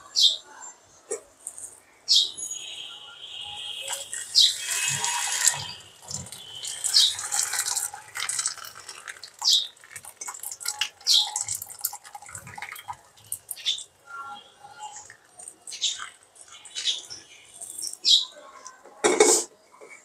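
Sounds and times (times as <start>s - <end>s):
water trickling and dripping: 3.8s - 18.0s
hot water pouring: 3.9s - 14.0s.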